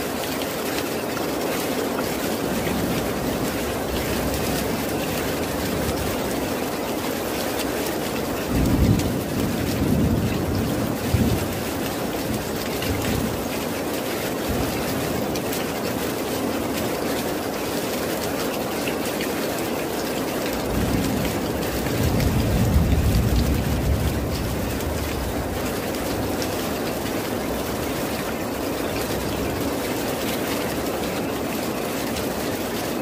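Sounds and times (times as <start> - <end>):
heavy rain: 0.0 - 33.0
rolling thunder: 8.4 - 13.4, 20.7 - 27.0.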